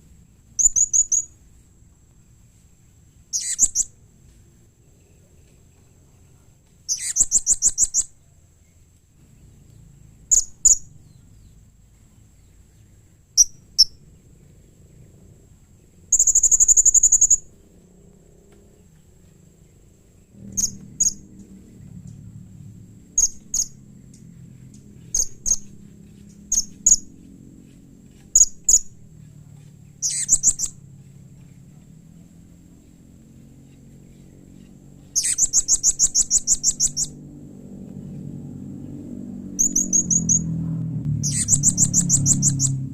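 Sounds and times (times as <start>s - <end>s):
parrot buzzing trills: 0.6s - 1.3s, 3.3s - 4.0s, 6.9s - 8.1s, 16.1s - 17.5s, 20.4s - 21.9s, 23.2s - 29.2s, 30.0s - 31.6s, 33.4s - 37.2s, 39.4s - 40.6s, 41.2s - 42.9s
parrot high-pitched chirps: 0.6s - 1.3s, 3.3s - 4.0s, 6.9s - 8.2s, 10.3s - 10.9s, 13.4s - 14.0s, 16.1s - 17.5s, 20.5s - 21.2s, 25.1s - 25.7s, 26.5s - 27.1s, 28.3s - 28.9s, 30.0s - 30.8s, 35.1s - 37.2s, 39.6s - 40.5s, 41.2s - 42.8s.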